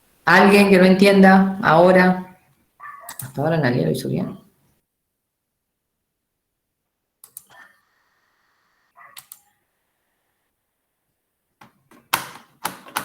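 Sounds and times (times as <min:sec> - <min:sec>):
computer keyboard and mouse clicks: 0:03.0 - 0:03.4, 0:07.2 - 0:07.6, 0:09.2 - 0:09.5, 0:11.6 - 0:13.0.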